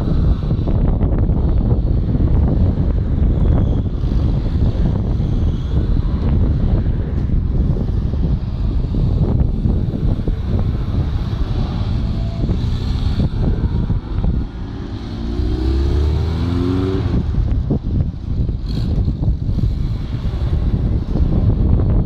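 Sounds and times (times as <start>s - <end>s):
wind rumble on microphone: 0.0s - 22.0s
sports cars driving past: 10.1s - 17.8s
car engine accelerating: 10.6s - 17.8s.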